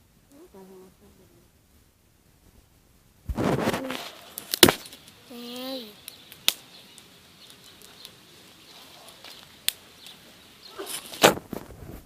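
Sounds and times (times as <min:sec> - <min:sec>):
kindling snapping and crackling: 0:02.4 - 0:12.0
twigs clicking: 0:03.6 - 0:11.6.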